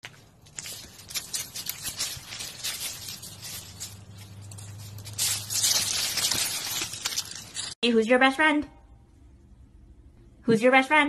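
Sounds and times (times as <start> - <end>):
fronds and dry mulch rustling: 0.0 - 7.8.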